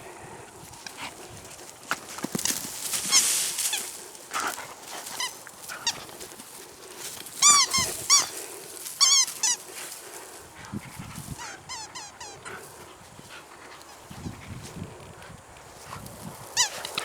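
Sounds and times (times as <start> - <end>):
dog toy squeaks: 7.4 - 8.3, 9.0 - 9.6.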